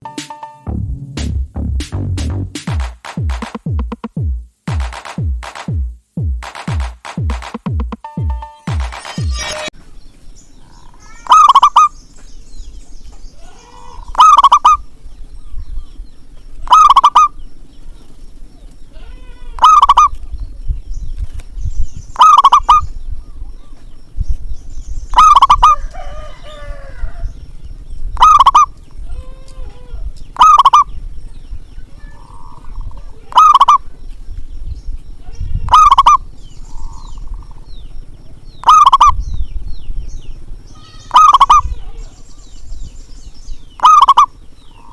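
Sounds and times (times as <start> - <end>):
low rumble: 0.7 - 2.6
fainter dove calls: 10.4 - 12.2, 13.1 - 21.0, 22.0 - 24.3, 25.0 - 34.3, 35.1 - 39.7, 40.4 - 42.9, 43.6 - 44.9
dove cooing: 10.6 - 12.0, 13.3 - 15.6, 16.5 - 17.4, 19.5 - 20.2, 22.2 - 23.8, 25.1 - 27.3, 28.2 - 31.0, 31.8 - 34.0, 35.7 - 37.7, 38.3 - 39.2, 40.9 - 42.4, 43.8 - 44.9.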